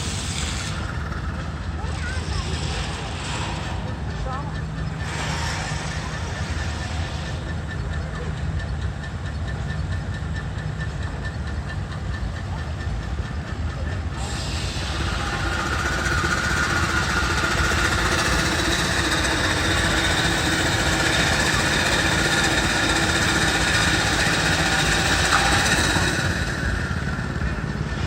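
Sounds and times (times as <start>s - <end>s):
hissing steam: 0.0s - 4.2s, 4.9s - 7.6s, 14.1s - 28.0s
steam traction engine running: 0.0s - 28.0s.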